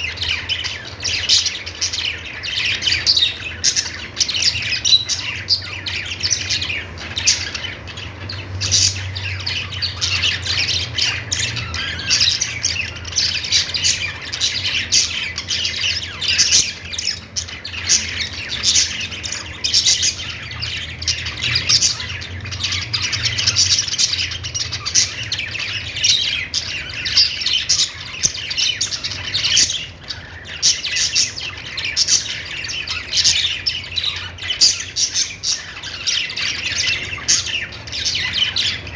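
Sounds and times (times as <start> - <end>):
budgerigars chattering: 0.0 - 38.9.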